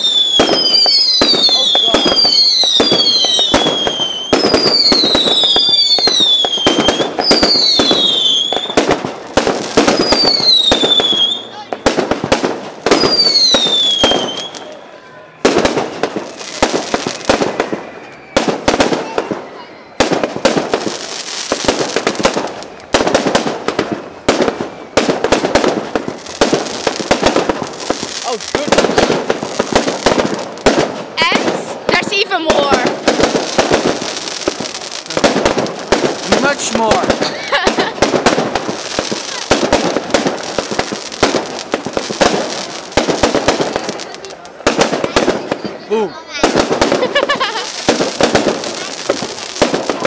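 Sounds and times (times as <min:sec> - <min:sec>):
falling firework whistle: 0:00.0 - 0:09.0, 0:09.8 - 0:11.7, 0:12.9 - 0:14.9, 0:16.3 - 0:30.5
fireworks bangs and crackles: 0:00.0 - 0:50.0.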